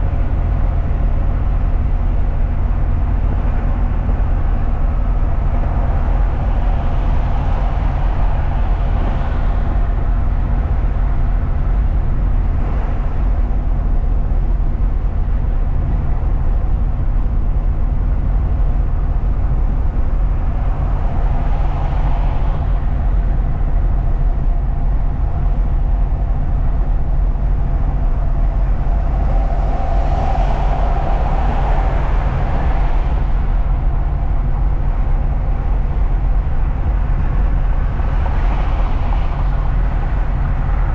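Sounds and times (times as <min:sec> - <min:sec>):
truck engine and road noise: 0:00.0 - 0:40.9.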